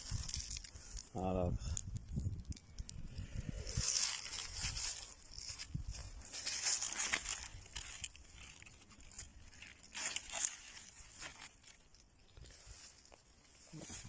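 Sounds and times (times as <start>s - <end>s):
rustling and crackling: 0.0s - 14.0s
sharp clicks and snaps: 1.7s - 3.2s.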